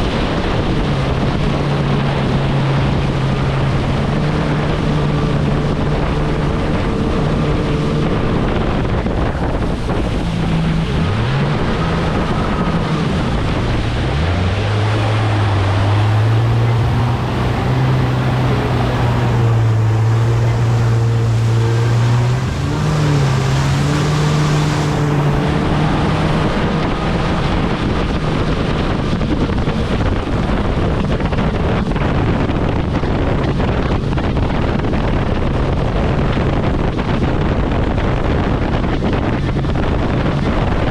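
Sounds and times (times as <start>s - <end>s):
water rushing: 0.0s - 31.3s
jet ski engine running: 0.0s - 40.9s
wind buffeting microphone: 0.0s - 40.9s.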